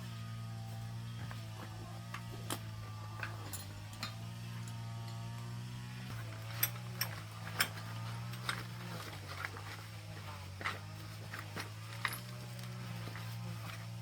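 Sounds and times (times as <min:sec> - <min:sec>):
small machine humming: 0:00.0 - 0:14.0
sharp clicks and knocks of parts: 0:02.0 - 0:05.5, 0:06.1 - 0:09.8, 0:10.6 - 0:13.9.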